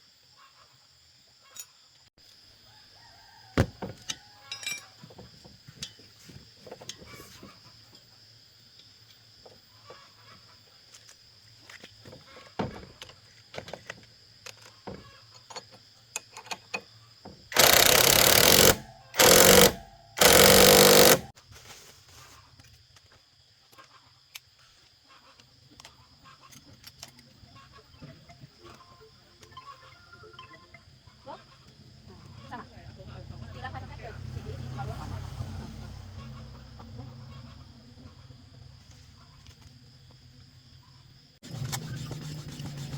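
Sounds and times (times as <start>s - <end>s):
power tool bursts: 17.5s - 21.3s
tools clicking and knocking: 17.5s - 21.3s.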